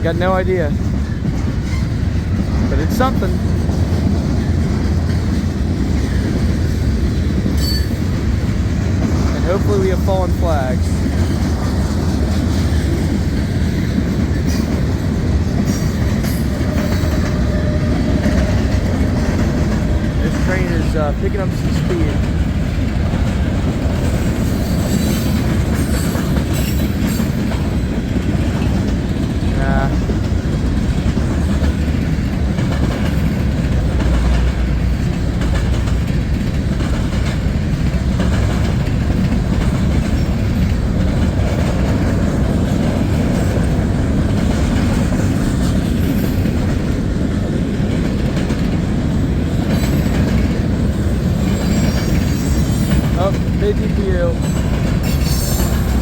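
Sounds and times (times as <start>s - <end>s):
clickety-clack over rail joints: 0.0s - 56.0s
freight train wheels rumbling: 0.0s - 56.0s
wheel squeal: 51.4s - 53.2s.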